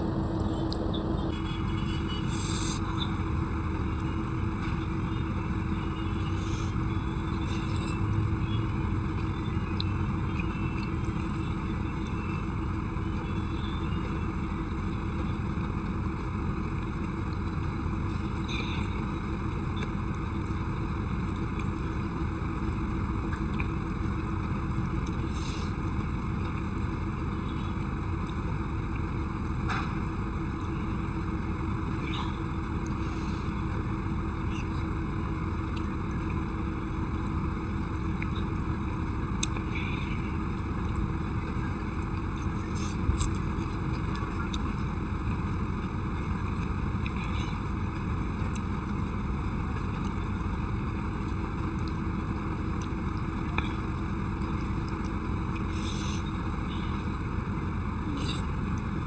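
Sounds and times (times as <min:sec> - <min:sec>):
rushing noise with low hum: 0:00.0 - 0:59.0
faint eating clicks and taps: 0:21.3 - 0:22.0.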